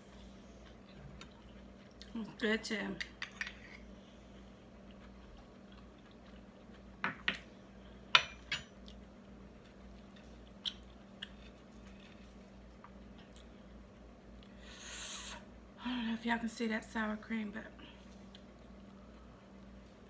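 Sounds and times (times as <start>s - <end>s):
faint steady hum: 0.0s - 20.0s
person chewing and crunching: 4.5s - 7.0s, 8.8s - 14.6s.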